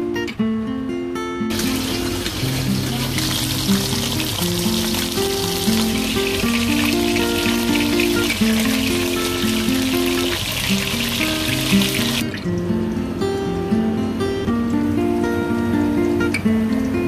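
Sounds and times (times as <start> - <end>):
acoustic guitar music: 0.0 - 17.0
chicken frying in oil: 1.5 - 12.4.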